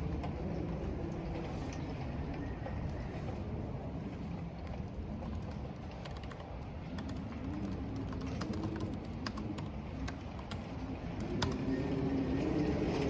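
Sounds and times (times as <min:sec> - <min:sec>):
rain: 0:00.0 - 0:13.0
wind moaning: 0:00.0 - 0:13.0
computer keyboard typing: 0:05.3 - 0:10.7.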